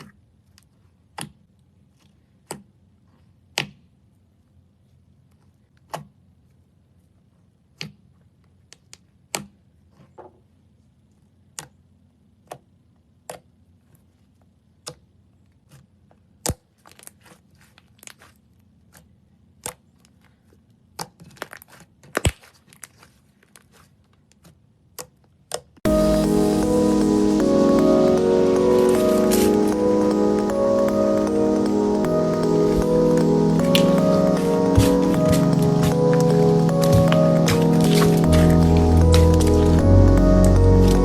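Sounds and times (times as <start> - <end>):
background music: 25.9 - 41.0.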